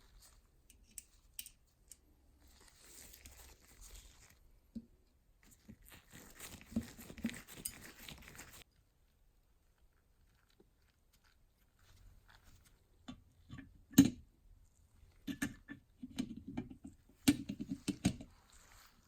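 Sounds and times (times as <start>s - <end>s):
hands rustling and scraping: 0.0s - 4.5s, 5.4s - 13.0s, 17.1s - 19.0s.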